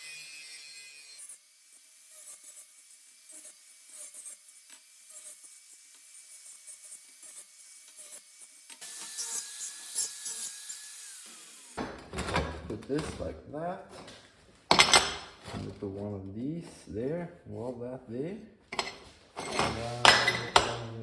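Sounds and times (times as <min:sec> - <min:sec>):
electric grinder on steel: 0:00.0 - 0:11.8, 0:18.8 - 0:21.0.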